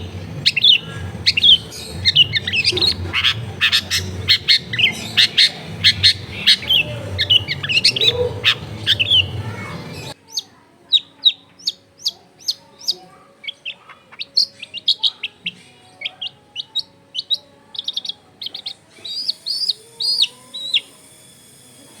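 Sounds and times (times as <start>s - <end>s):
shrike singing: 0.0s - 10.2s.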